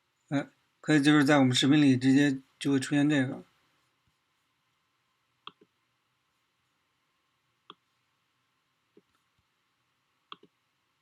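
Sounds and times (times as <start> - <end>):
computer mouse clicks: 5.4 - 5.8, 7.6 - 7.8, 10.3 - 10.6.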